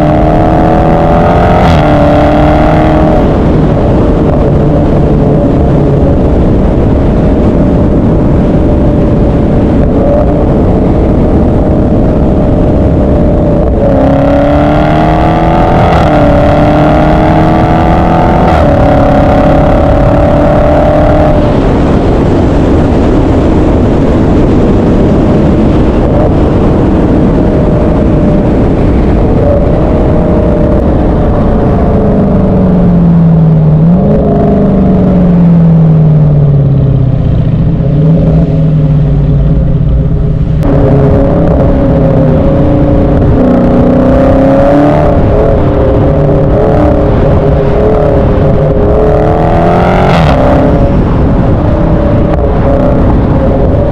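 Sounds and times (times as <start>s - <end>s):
engine revving: 0.0s - 36.7s, 37.4s - 53.9s
car accelerating through gears: 40.6s - 53.9s.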